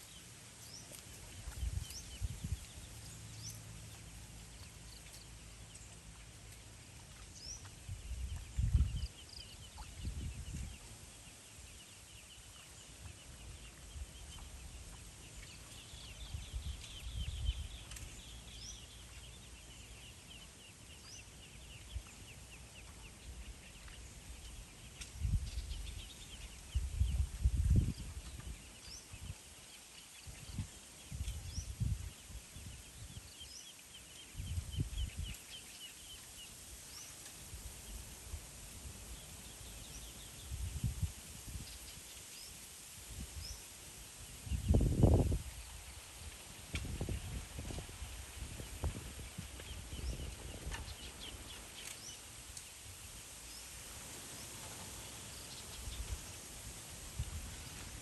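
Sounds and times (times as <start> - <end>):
small birds chirping: 0.0 - 58.0
outdoor hiss: 35.2 - 58.0
birds chirping: 46.8 - 52.8.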